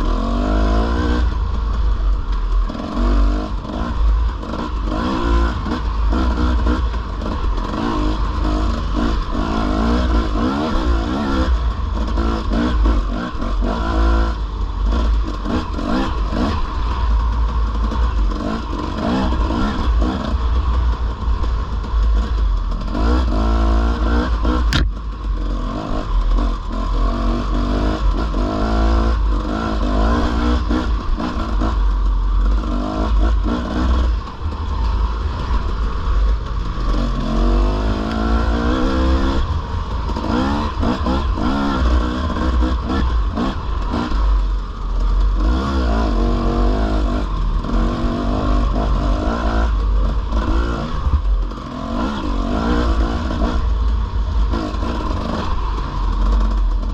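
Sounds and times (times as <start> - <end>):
dirt bike engine revving: 0.0 - 56.9
sharp click: 24.7 - 25.0.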